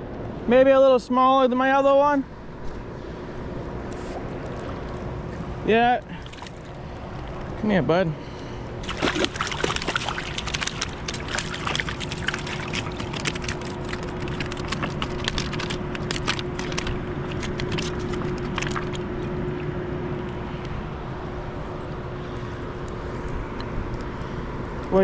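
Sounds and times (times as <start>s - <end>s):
faint steady hum: 0.0s - 25.0s
sharp splashes and knocks: 6.2s - 6.8s, 8.8s - 19.1s.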